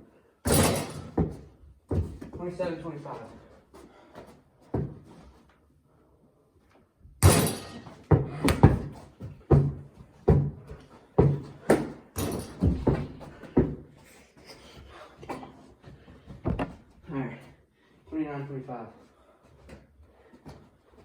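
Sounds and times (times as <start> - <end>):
basketball bouncing on hard floor: 0.5 - 2.4, 7.2 - 13.8, 16.4 - 16.8.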